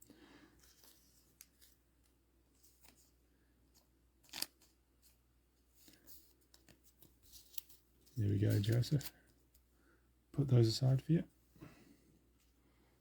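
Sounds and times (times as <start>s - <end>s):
trading cards snapping and sliding: 4.2s - 4.7s.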